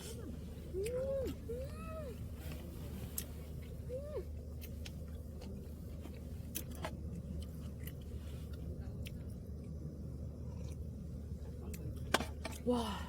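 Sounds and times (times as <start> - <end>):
steady low rumble: 0.0 - 13.0
person chewing food: 4.6 - 9.2, 10.5 - 10.9.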